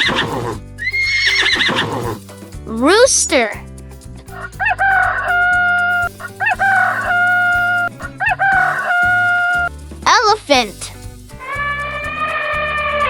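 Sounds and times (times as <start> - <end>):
background music: 0.0 - 13.0
rooster crowing: 6.2 - 9.5.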